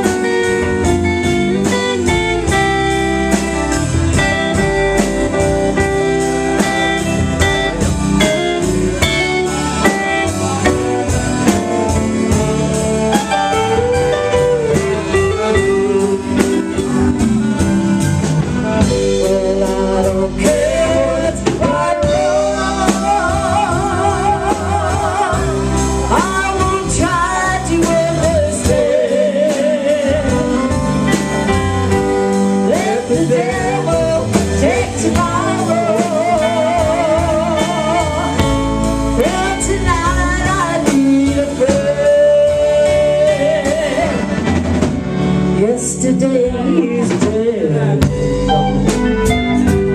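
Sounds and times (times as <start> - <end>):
steady drum beat: 0.0 - 45.6
electric bass: 0.0 - 49.9
guitar: 0.0 - 49.9
saxophone solo: 6.8 - 19.7.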